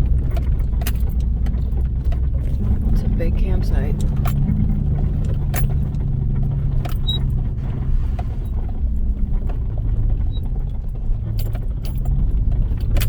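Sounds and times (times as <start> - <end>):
clicks and rattles: 0.0 - 7.5, 8.5 - 13.0
vehicle engine and road drone: 0.0 - 13.0.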